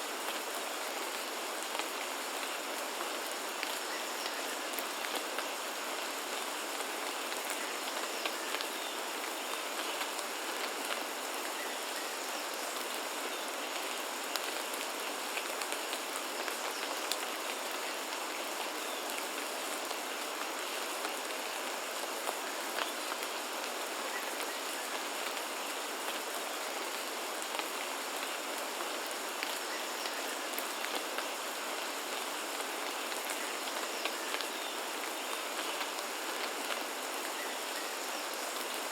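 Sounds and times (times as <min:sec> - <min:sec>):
rain falling on foliage: 0:00.0 - 0:38.9.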